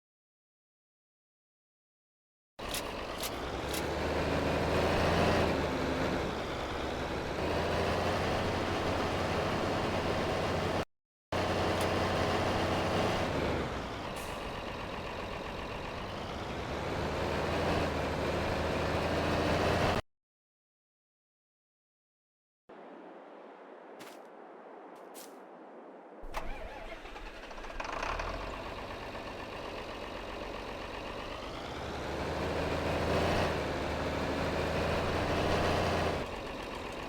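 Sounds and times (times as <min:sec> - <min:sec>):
tractor engine running: 0:02.6 - 0:10.8, 0:11.4 - 0:20.0, 0:26.2 - 0:37.0.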